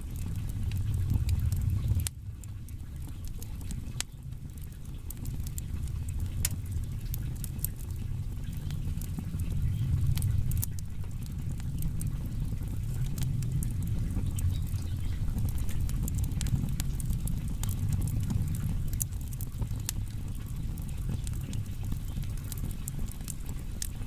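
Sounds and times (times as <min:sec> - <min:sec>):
firewood crackling and popping: 0:00.0 - 0:24.0
low rush of flame: 0:00.0 - 0:24.0.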